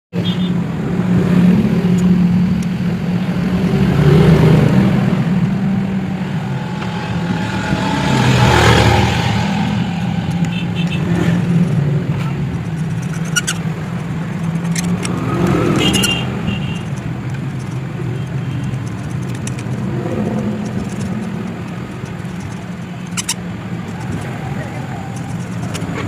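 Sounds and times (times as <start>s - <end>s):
motorcycle engine running: 6.5s - 26.0s.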